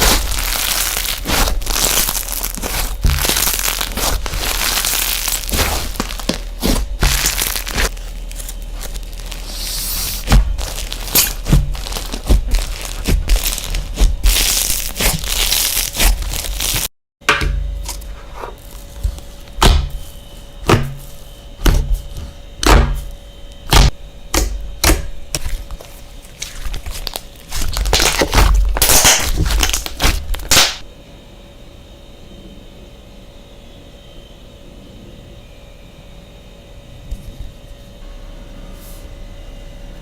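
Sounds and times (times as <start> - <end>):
slime crinkly crackling: 0.0 - 16.9, 25.3 - 30.9.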